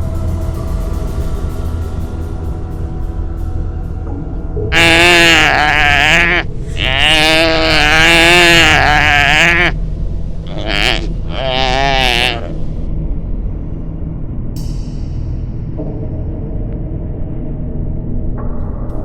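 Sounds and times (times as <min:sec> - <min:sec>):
animal bleating: 0:04.7 - 0:09.8, 0:10.5 - 0:12.6.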